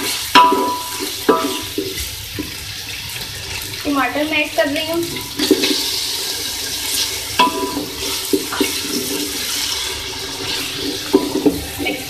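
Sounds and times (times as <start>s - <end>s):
tomatoes sizzling in a pot: 0.0s - 12.0s
wooden spatula knocking on pot: 0.3s - 2.5s, 7.4s - 8.8s.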